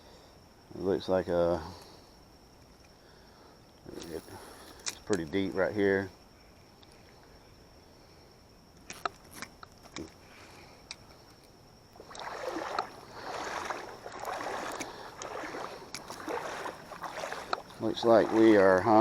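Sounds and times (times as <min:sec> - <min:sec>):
fishing line swishing as reeled in: 0:12.0 - 0:18.7.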